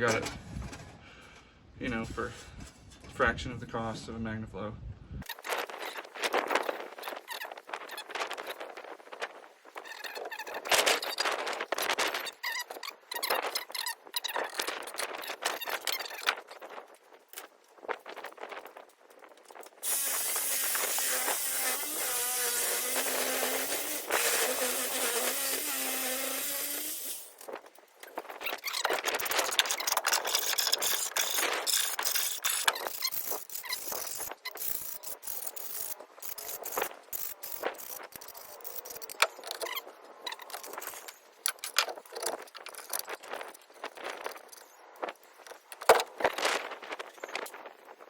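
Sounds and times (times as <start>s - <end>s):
power tool squealing: 19.8s - 27.4s.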